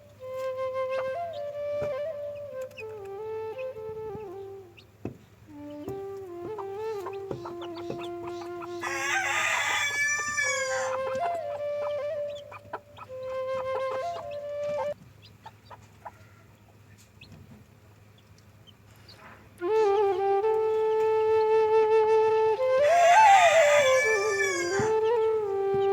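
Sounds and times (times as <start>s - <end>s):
chickens clucking: 4.2s - 19.4s, 22.8s - 25.0s
rooster crowing: 8.7s - 11.2s, 22.8s - 25.0s.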